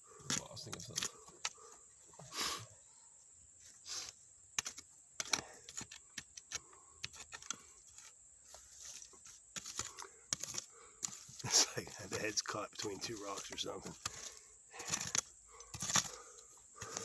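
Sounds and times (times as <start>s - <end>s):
hand digging in stony soil: 3.6s - 17.0s
tool clicking against rocks and glass: 4.6s - 8.1s, 8.9s - 16.2s.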